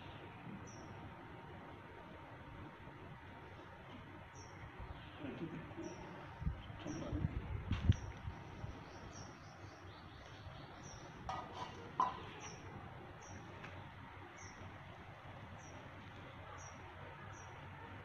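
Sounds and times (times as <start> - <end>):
faint outdoor hiss: 0.0 - 18.0
bird chirping: 4.3 - 7.2, 7.9 - 14.7, 15.5 - 17.6.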